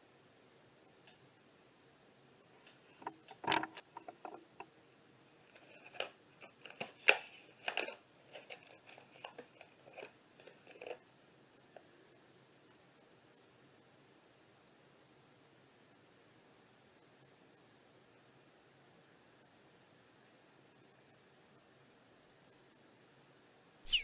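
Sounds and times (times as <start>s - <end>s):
cat crunching food: 7.6s - 11.0s.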